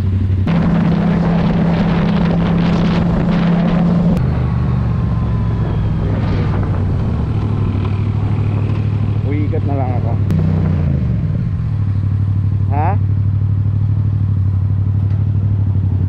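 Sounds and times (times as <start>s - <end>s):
wind noise on microphone: 0.0s - 11.5s
motorcycle engine running: 0.0s - 16.0s.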